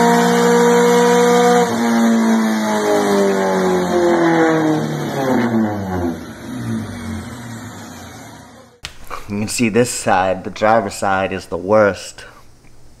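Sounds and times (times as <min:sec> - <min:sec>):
car engine revs falling: 0:00.0 - 0:08.8.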